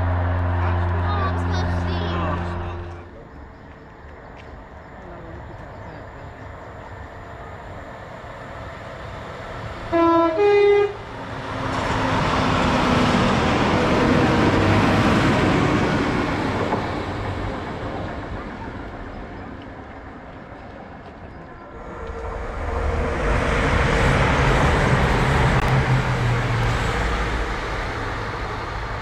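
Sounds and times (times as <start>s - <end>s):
two-tone train horn: 0.0s - 3.1s, 9.9s - 11.2s
train passing: 0.0s - 29.0s.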